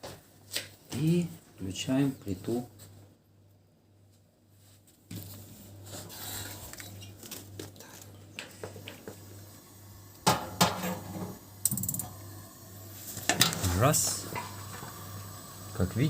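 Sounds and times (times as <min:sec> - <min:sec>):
steady gas hiss: 0:10.9 - 0:16.0.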